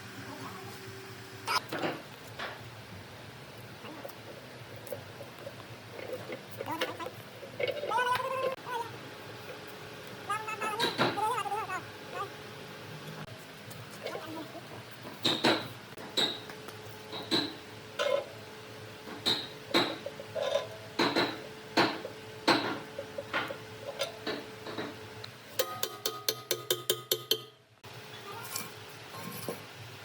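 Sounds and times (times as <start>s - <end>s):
sharp knocks and clinks: 15.2s - 17.6s, 25.6s - 27.6s.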